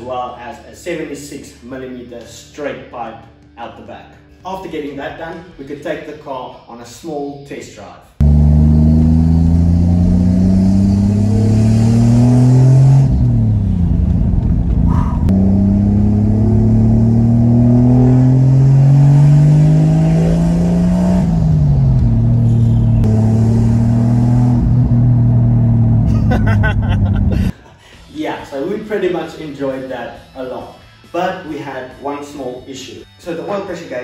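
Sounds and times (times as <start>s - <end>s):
turbocharged car engine revving: 8.2s - 27.5s.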